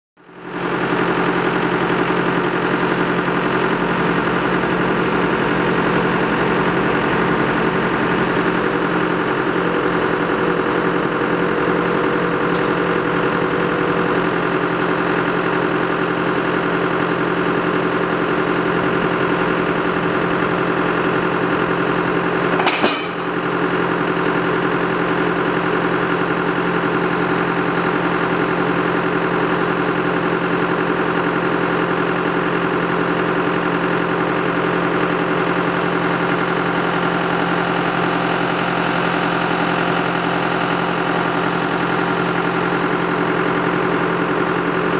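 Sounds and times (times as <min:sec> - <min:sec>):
heavy equipment engine idling: 0:00.2 - 0:44.9
sharp knock: 0:22.6 - 0:23.3.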